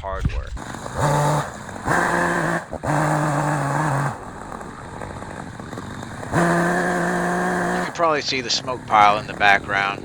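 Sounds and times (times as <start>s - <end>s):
chainsaw engine revving and idling: 0.6s - 10.0s.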